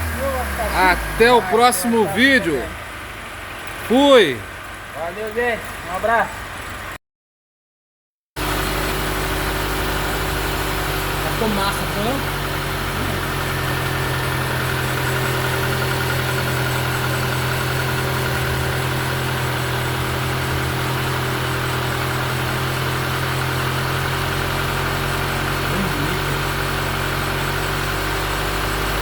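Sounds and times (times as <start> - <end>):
car engine idling: 0.0 - 6.9, 8.4 - 29.0.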